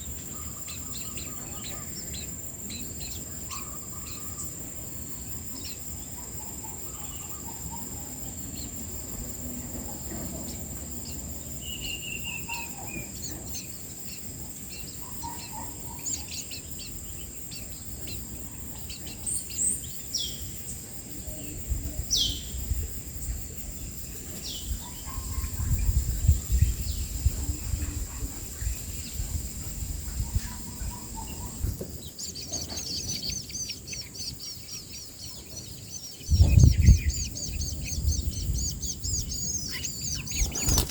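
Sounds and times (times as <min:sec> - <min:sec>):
high insect drone: 0:00.0 - 0:40.9
birds chirping and whistling: 0:28.6 - 0:40.9.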